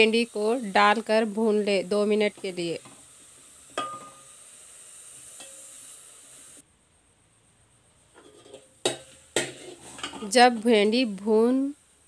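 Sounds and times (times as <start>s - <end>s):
okra sizzling in a pot: 0.0s - 12.0s
metal spoon clinking on pot: 3.8s - 4.2s.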